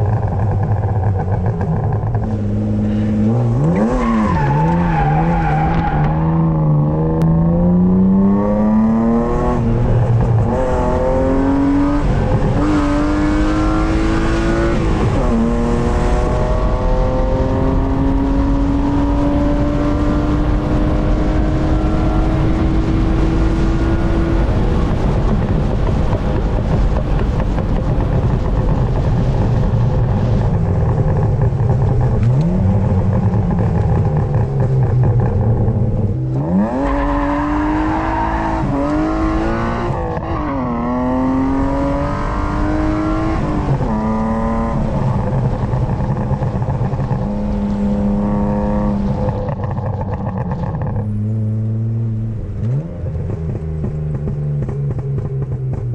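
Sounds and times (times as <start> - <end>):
car engine and exhaust accelerating: 0.0 - 55.9.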